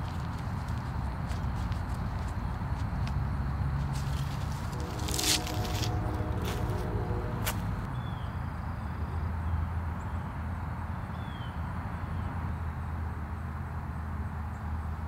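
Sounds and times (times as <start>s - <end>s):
low train rumble: 0.0s - 9.0s.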